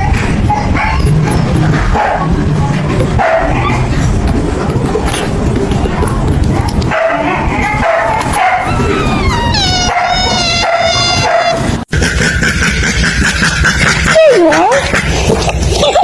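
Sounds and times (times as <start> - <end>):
dog whining: 7.3 - 11.9.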